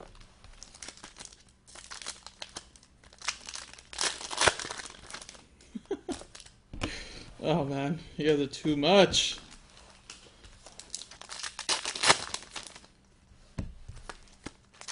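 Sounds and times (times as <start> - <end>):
card wrapper crinkling and tearing: 0.0 - 5.4, 6.1 - 6.6, 10.1 - 13.0, 14.0 - 14.9.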